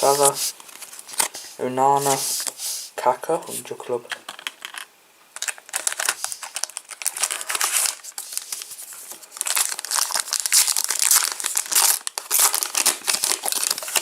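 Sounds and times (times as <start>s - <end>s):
wrapper crumpled and torn open: 4.3s - 14.0s.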